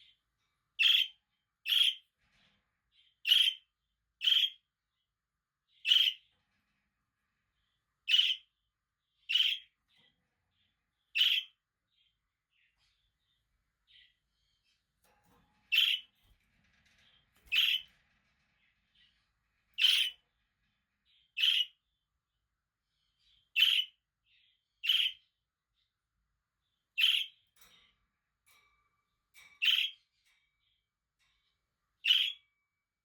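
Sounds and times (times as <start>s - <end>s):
parakeets chirping: 0.8s - 2.0s, 3.2s - 4.6s, 5.8s - 6.3s, 8.0s - 8.6s, 9.2s - 9.8s, 10.6s - 13.1s, 15.7s - 18.2s, 18.9s - 20.2s, 21.1s - 21.8s, 23.2s - 24.0s, 24.8s - 25.3s, 27.0s - 27.4s, 29.6s - 30.1s, 32.0s - 32.5s.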